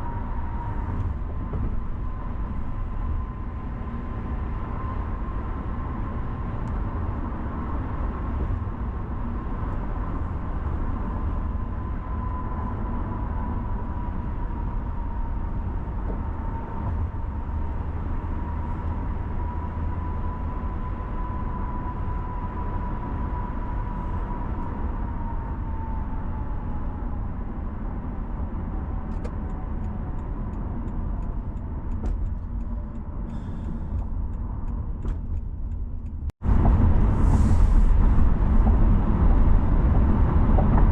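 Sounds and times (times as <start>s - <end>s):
car road rumble and tyre noise: 0.0s - 40.9s
light ticks: 29.1s - 36.2s.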